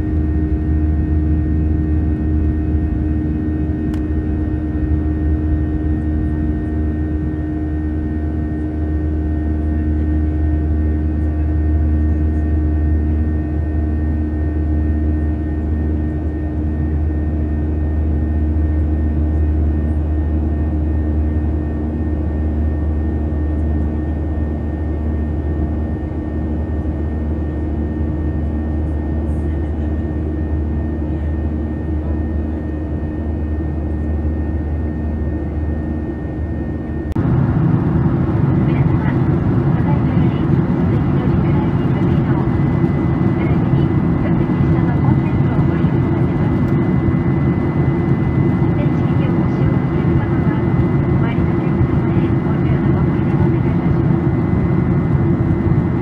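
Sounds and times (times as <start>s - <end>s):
jet engines and rushing air: 0.0s - 8.6s, 34.4s - 56.0s
deep rumble: 0.0s - 8.8s, 36.9s - 56.0s
pulsing hum: 0.0s - 23.4s, 29.0s - 56.0s.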